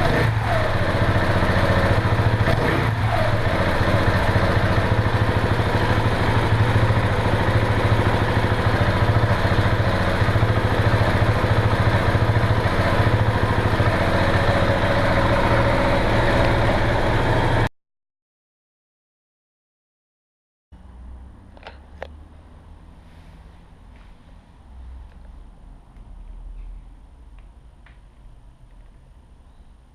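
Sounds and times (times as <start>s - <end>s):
motorcycle engine idling: 0.0s - 17.7s.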